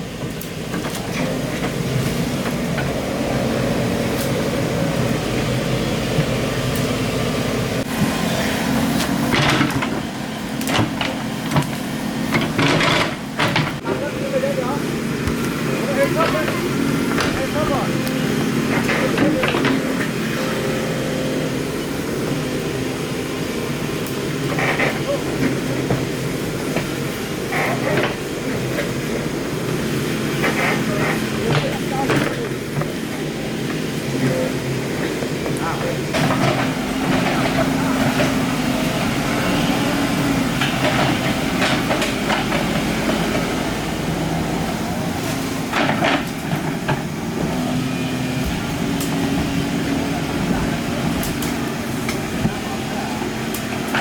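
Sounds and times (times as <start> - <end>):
excavator diesel engine running: 0.0 - 54.0
sharp knocks of machine working: 9.0 - 14.0.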